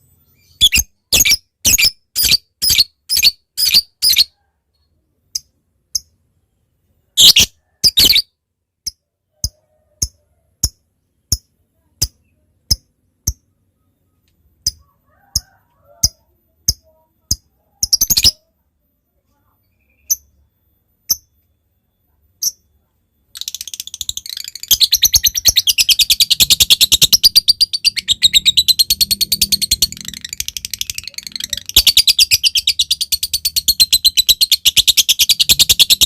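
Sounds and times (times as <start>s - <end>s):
lovebird shrill squawks: 7.2s - 8.3s.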